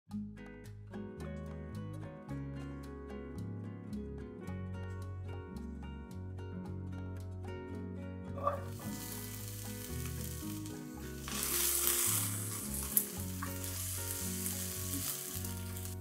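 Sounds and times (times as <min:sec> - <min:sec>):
onion sizzling in hot oil: 0:08.4 - 0:16.0
spatula stirring in a pan: 0:08.4 - 0:16.0.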